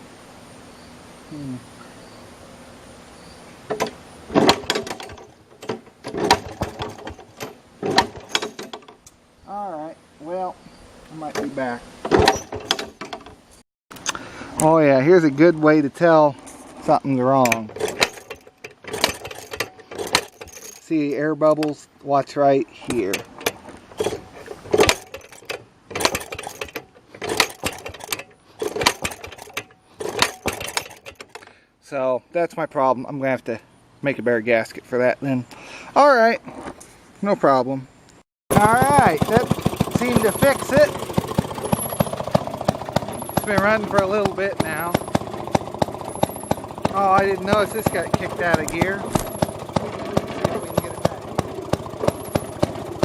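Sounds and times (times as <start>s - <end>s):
two-stroke engine popping: 3.7s - 9.0s, 17.0s - 20.8s, 22.9s - 31.4s, 38.5s - 53.0s.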